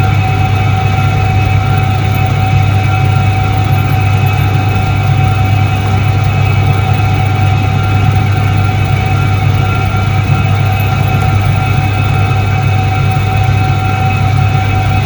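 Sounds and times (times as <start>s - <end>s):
faint steady whine: 0.0s - 15.0s
washing machine motor hum: 0.0s - 15.0s.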